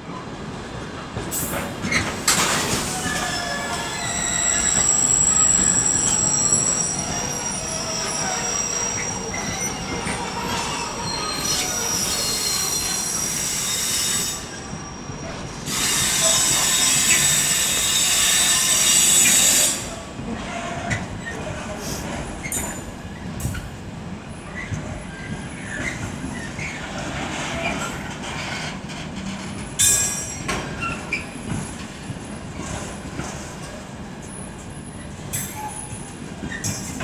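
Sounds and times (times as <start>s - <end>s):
wheel squeal: 1.8s - 21.4s, 24.6s - 29.0s, 34.9s - 37.0s.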